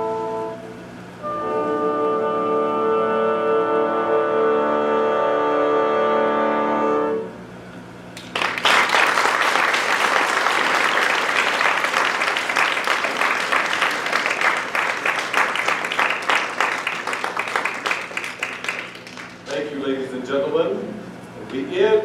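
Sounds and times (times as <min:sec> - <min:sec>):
orchestra sustained chord: 0:01.2 - 0:07.3
audience applause: 0:08.2 - 0:19.6.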